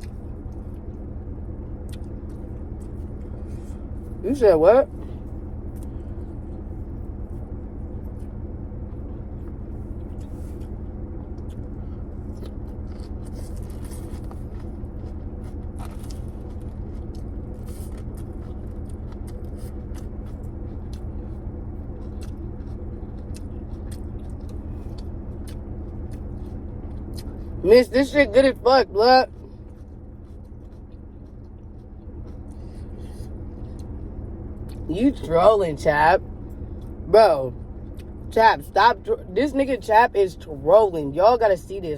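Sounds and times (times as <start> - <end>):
steady low hum: 0.0 - 41.9
clicks and scrapes of eating: 8.9 - 27.6, 29.5 - 34.0.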